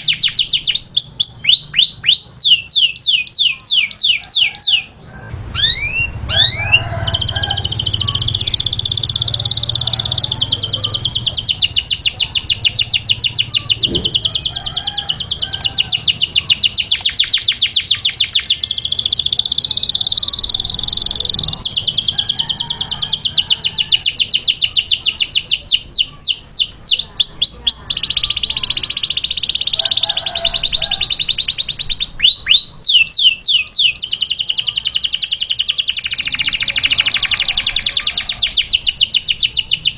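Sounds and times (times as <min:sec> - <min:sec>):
canary trilling song: 0:00.0 - 0:39.9
canary sweeping whistles: 0:05.5 - 0:10.5.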